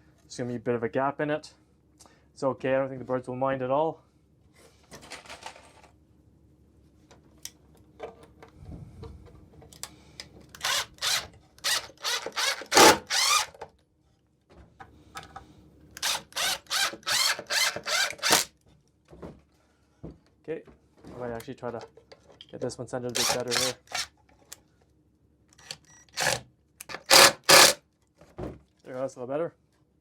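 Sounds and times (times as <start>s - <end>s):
power drill driving screws: 10.6s - 13.5s, 16.0s - 18.5s, 23.1s - 24.1s, 25.6s - 27.8s.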